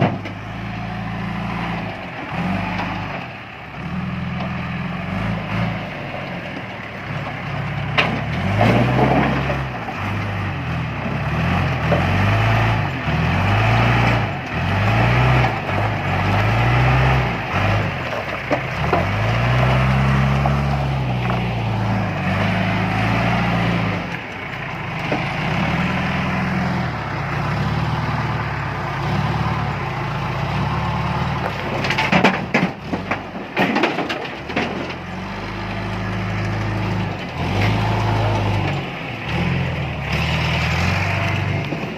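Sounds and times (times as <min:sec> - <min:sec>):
diesel engine revving: 0:00.0 - 0:41.9
rocks clattering and scraping: 0:08.0 - 0:10.4, 0:17.6 - 0:22.5, 0:31.4 - 0:39.4.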